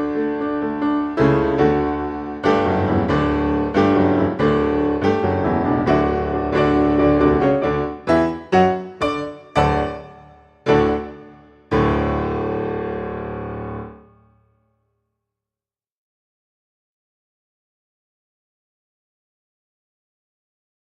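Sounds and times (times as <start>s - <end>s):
piano music: 0.0s - 14.5s.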